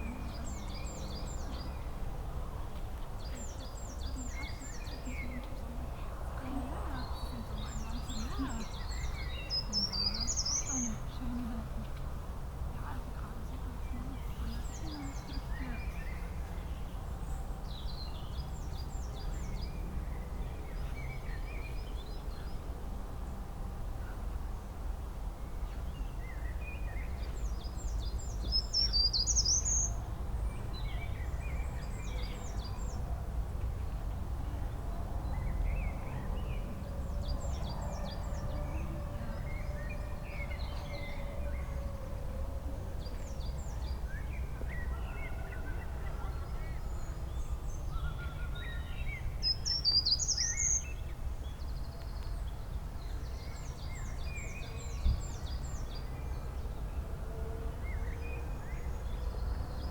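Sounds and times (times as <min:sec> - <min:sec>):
songbirds chirping and singing: 0:02.7 - 0:12.1, 0:12.8 - 0:22.7, 0:25.7 - 0:33.2, 0:34.8 - 0:59.9.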